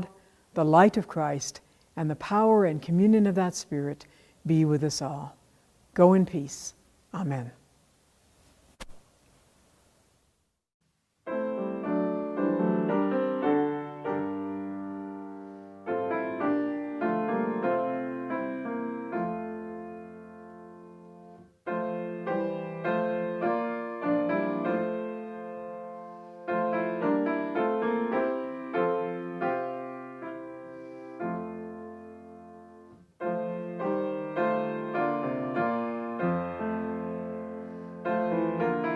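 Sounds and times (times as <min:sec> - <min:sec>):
piano music: 0:11.3 - 0:38.9.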